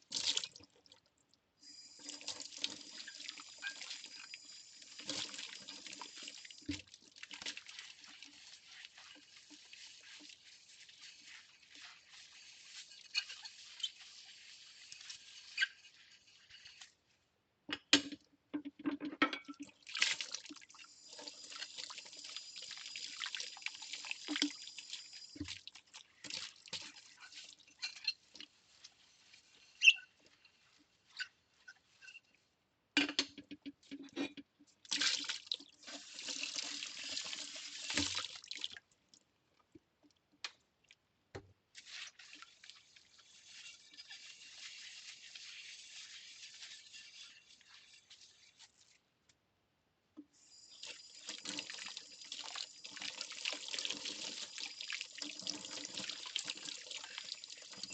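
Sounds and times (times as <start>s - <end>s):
tap water running: 0.0s - 0.7s, 1.6s - 16.9s, 19.2s - 28.9s, 34.8s - 38.8s, 41.8s - 48.8s, 50.2s - 57.9s
scrubbing: 6.6s - 17.1s, 41.7s - 49.0s.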